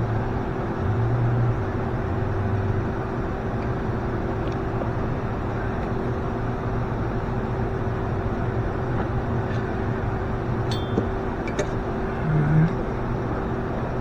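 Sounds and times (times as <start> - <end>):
low mechanical drone: 0.0 - 14.0
faint steady higher tone: 10.7 - 11.3.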